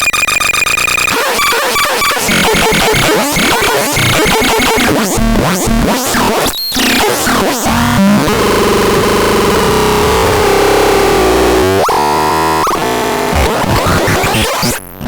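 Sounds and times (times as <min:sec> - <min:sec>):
harsh electronic synthesizer: 0:00.0 - 0:15.0
rising synthesizer pitch sweeps: 0:07.8 - 0:14.3.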